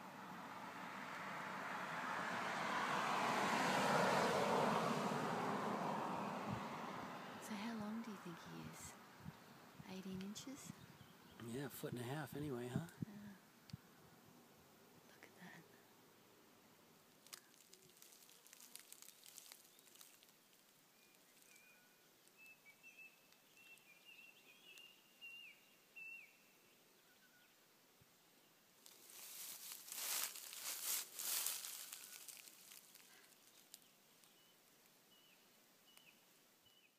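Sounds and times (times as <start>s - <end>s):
rustling noise: 17.2s - 21.6s, 28.8s - 33.8s
faint high bird calls: 21.0s - 27.6s.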